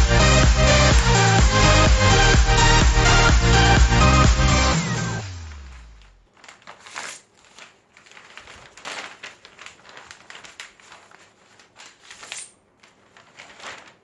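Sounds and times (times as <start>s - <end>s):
background music: 0.0s - 6.0s
paper rustling and crinkling: 5.5s - 14.0s.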